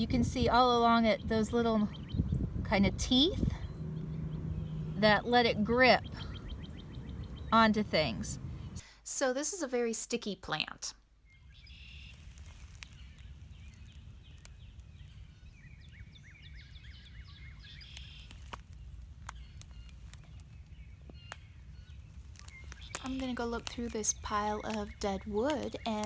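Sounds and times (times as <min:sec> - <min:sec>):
songbirds singing: 0:00.0 - 0:08.8, 0:11.2 - 0:26.0
steady low rumble: 0:00.0 - 0:08.8.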